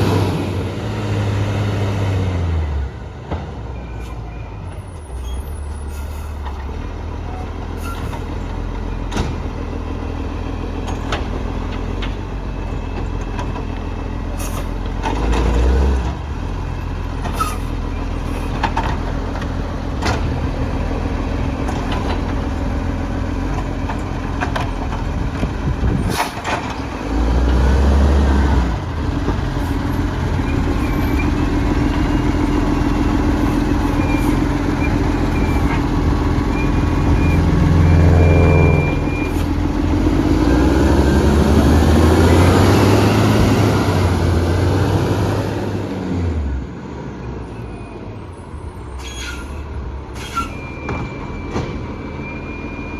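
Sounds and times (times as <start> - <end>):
garbage truck engine running: 4.3 - 46.6.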